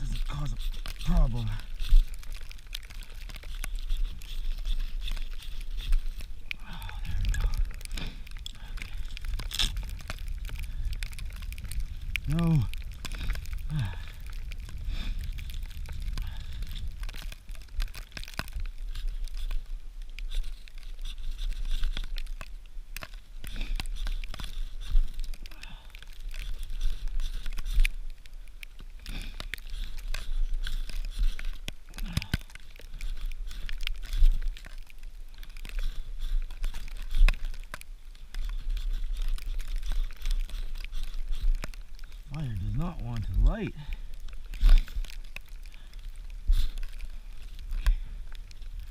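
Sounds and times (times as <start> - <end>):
dry tinder crunching: 0.0 - 48.9
wind buffeting microphone: 6.7 - 17.2.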